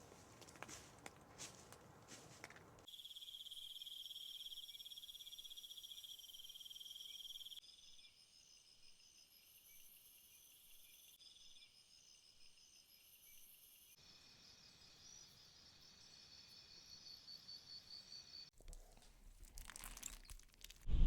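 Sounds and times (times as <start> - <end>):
rustling: 0.0 - 2.9, 18.5 - 20.9
insects trilling: 2.9 - 18.5.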